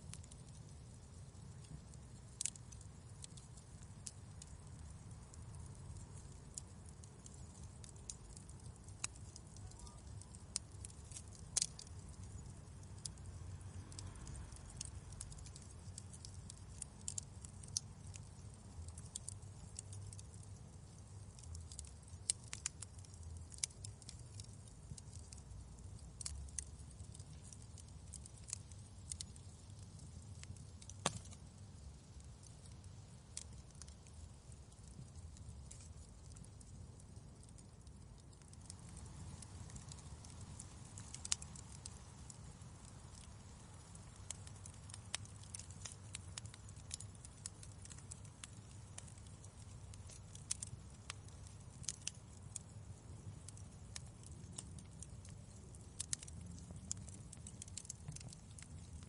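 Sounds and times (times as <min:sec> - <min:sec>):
low steady rumble: 0:00.0 - 0:22.2
fire crackling with pops: 0:00.0 - 0:59.0.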